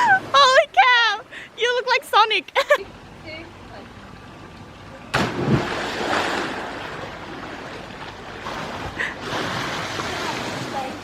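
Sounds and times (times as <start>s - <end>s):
wave crashing: 5.1s - 10.9s
surf rushing: 5.1s - 11.0s.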